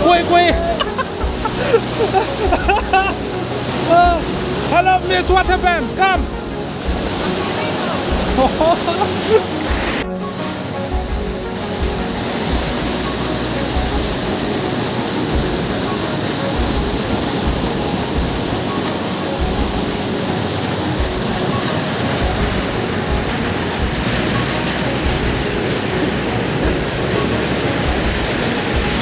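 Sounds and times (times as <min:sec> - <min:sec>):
low rumble: 0:00.0 - 0:04.7
waterfall roaring: 0:00.0 - 0:29.0.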